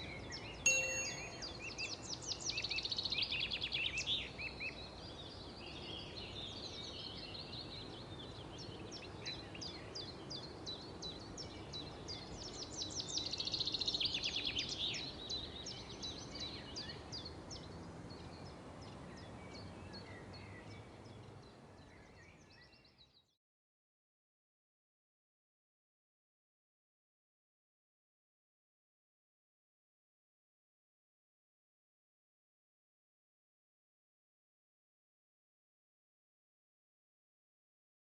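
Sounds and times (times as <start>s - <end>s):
outdoor background hiss: 0.0s - 23.2s.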